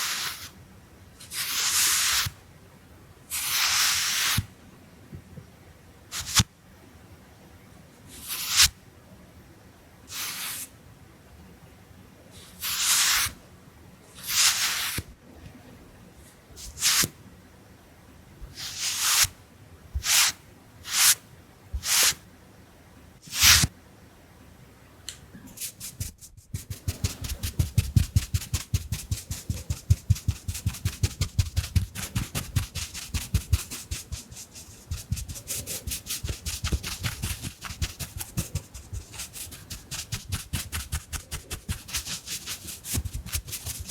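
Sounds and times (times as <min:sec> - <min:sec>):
makeup brush dabbing: 0:25.6 - 0:43.9
makeup brush swishes: 0:25.6 - 0:43.9.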